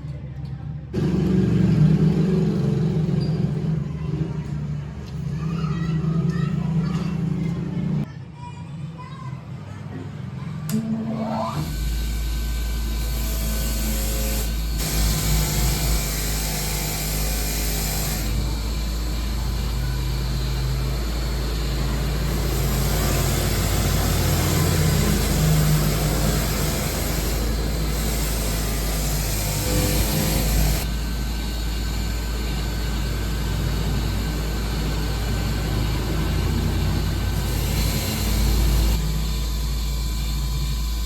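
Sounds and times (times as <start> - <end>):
power tool hiss over low hum: 11.6 - 41.0.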